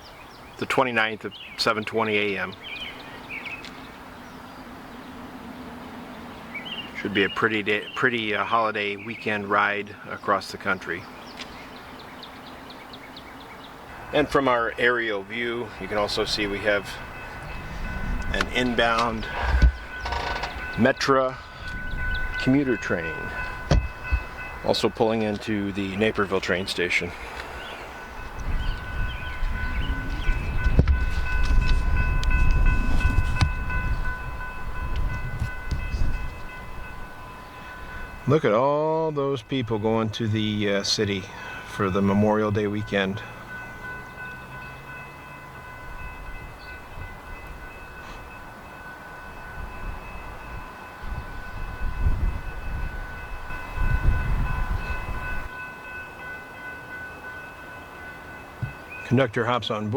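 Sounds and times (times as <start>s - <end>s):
train rumble: 1.6s - 38.6s, 39.3s - 59.3s
high whine of steady tones: 12.6s - 38.4s
sharp knocks: 23.7s - 24.2s.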